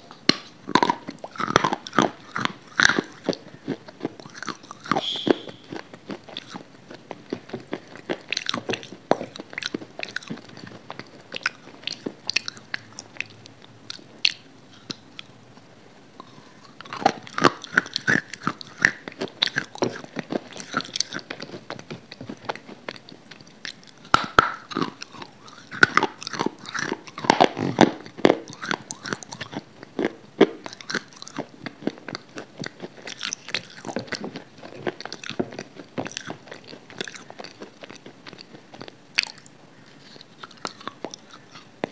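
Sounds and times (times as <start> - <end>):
chewing and crunching food: 0.0 - 41.9
wet mouth sounds: 0.1 - 15.3, 16.2 - 41.9.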